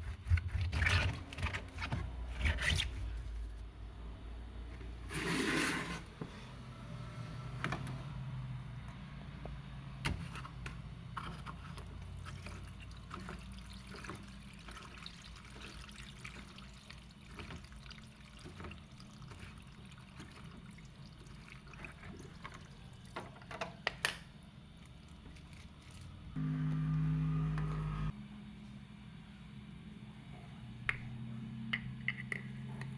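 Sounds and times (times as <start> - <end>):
water running: 11.8 - 23.2.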